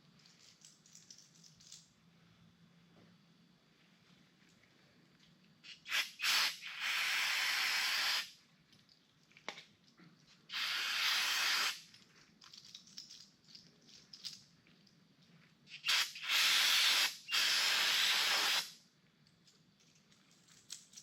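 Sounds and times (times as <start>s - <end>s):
aerosol spray hissing: 5.7s - 8.4s, 10.5s - 11.8s, 15.7s - 18.8s.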